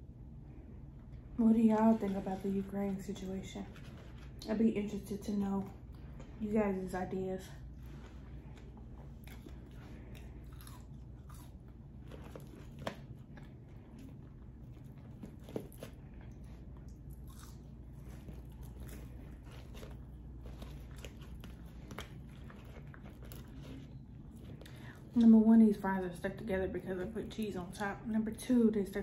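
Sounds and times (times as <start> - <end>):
fries crunching: 7.6 - 25.4
person chewing: 7.8 - 25.2.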